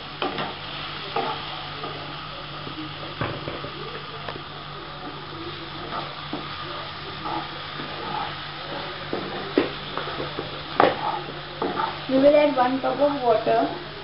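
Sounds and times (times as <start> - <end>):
food sizzling in oil: 0.0 - 14.0
wooden spatula scraping pan: 7.2 - 9.4, 10.0 - 12.3.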